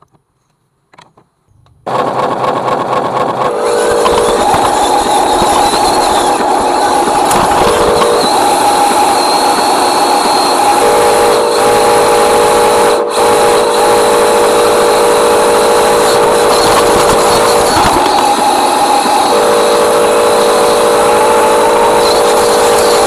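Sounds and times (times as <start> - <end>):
lower motor whine: 1.6 - 23.0
electric motor whine: 1.9 - 23.0.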